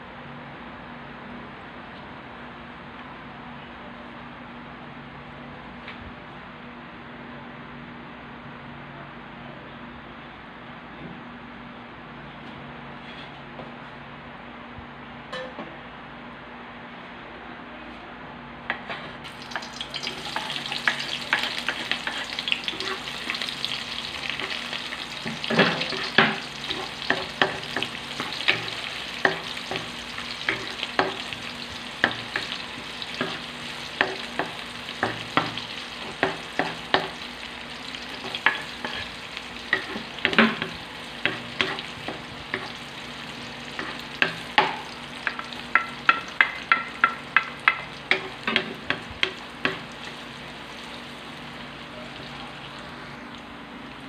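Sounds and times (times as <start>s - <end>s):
onions frying in hot oil: 19.2s - 54.0s
wooden spatula knocking on wok: 25.2s - 31.3s, 33.2s - 37.2s, 39.8s - 42.8s, 43.8s - 49.9s.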